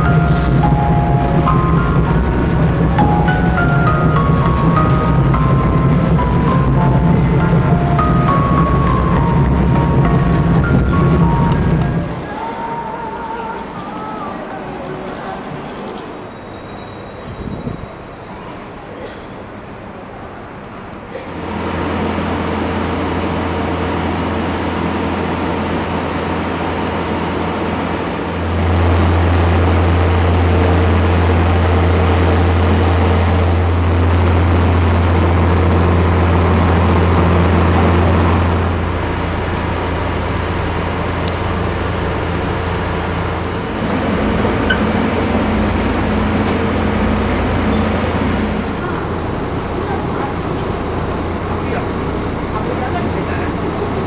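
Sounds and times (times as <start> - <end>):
idling train hum: 0.0 - 54.0.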